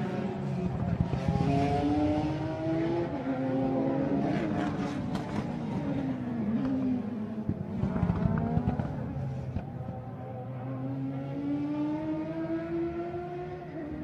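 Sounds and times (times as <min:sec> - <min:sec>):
racing car engine revving: 0:00.0 - 0:09.7, 0:10.5 - 0:14.0.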